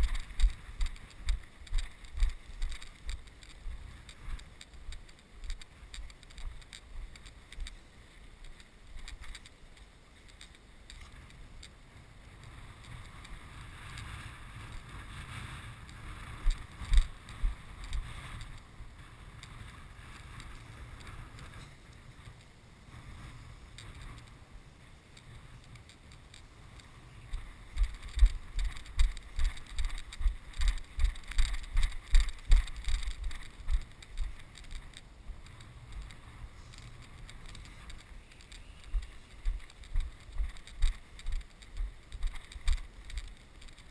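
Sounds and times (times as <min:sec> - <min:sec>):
wind buffeting microphone: 0:00.0 - 0:43.9
regular low thumps: 0:27.3 - 0:36.2.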